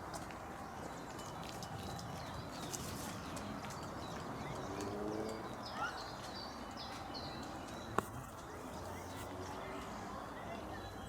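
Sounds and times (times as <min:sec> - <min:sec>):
small birds chirping: 0:00.6 - 0:11.0.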